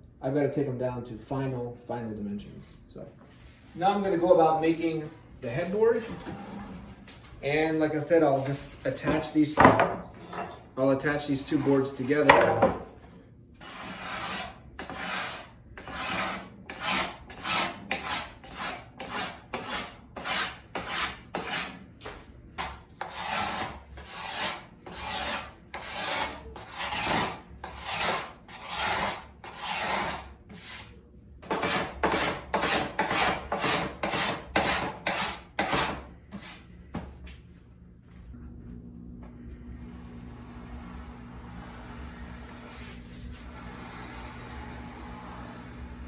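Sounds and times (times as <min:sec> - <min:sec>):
hand tool rasping wood: 0:13.6 - 0:30.8, 0:31.5 - 0:36.0.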